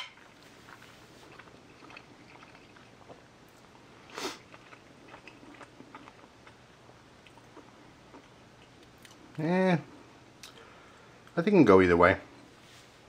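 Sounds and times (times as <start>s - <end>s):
person chewing: 0.0s - 9.4s.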